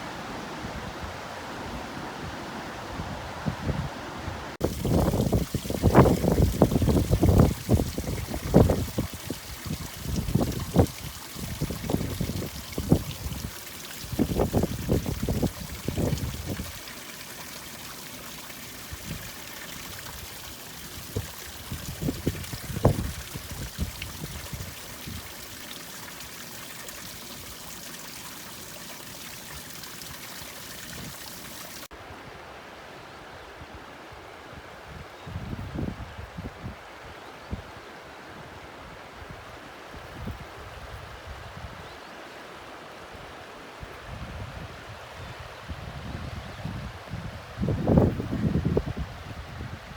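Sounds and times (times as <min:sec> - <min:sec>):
wind buffeting microphone: 0:04.6 - 0:16.8, 0:21.0 - 0:25.2, 0:44.1 - 0:49.9
water rushing over waterfall: 0:04.6 - 0:31.9.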